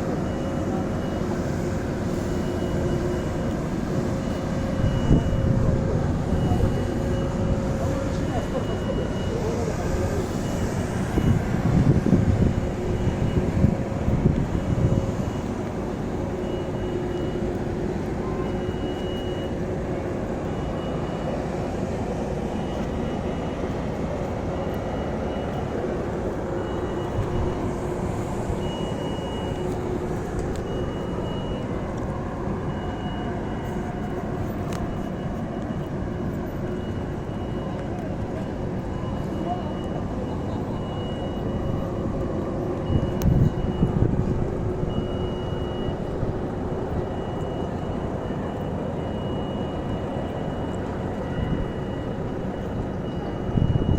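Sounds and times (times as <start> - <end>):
faint high beep: 0.0 - 53.9.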